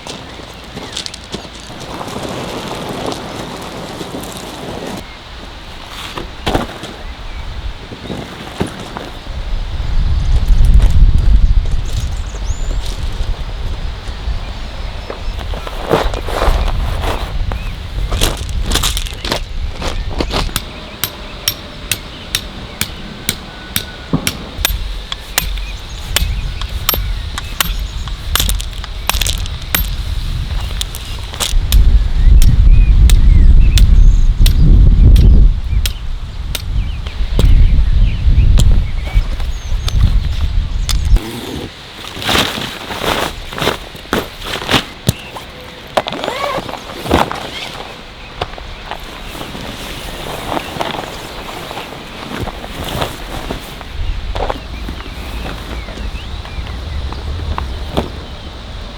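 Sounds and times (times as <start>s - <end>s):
low wind rumble on microphone: 0.0s - 58.9s
hammer striking metal tent pegs: 20.5s - 27.8s.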